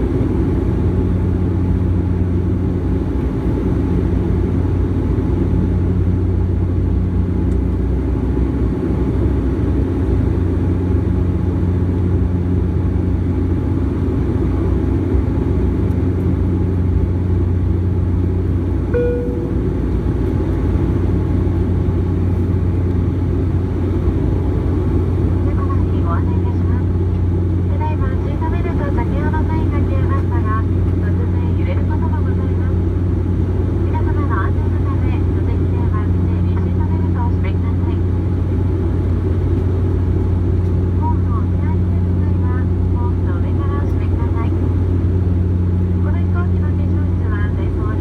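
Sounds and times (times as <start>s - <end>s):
airliner engines droning: 0.0s - 48.0s
short chime: 19.0s - 20.1s.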